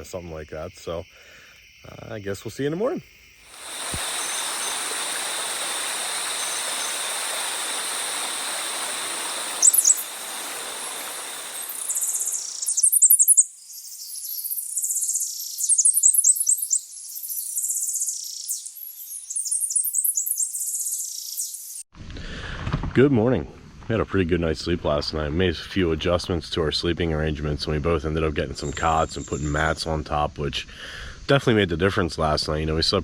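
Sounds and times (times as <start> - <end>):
even hiss: 0.0 - 13.2, 27.6 - 33.0
crickets trilling: 0.0 - 21.8, 27.0 - 33.0
songbirds chirping: 3.6 - 21.7, 27.7 - 29.8.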